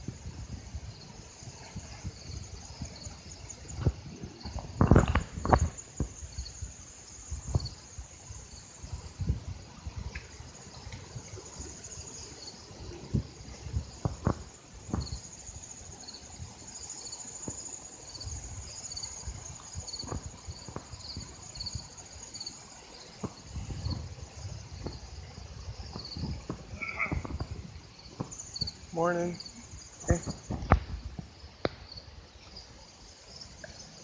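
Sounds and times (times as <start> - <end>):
insects chirping: 0.0 - 34.0.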